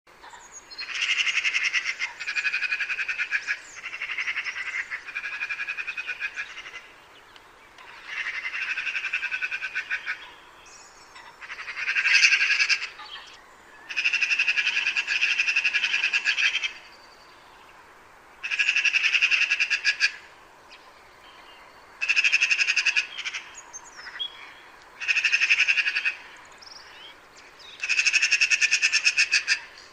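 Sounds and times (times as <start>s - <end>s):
magpie chattering: 25.0s - 26.2s, 27.8s - 29.7s.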